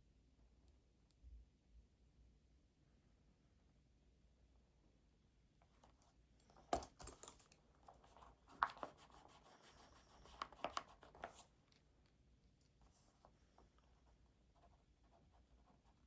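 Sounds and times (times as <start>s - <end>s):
small clicks and taps: 5.6s - 9.1s
paper scratching and rustling: 7.2s - 11.6s.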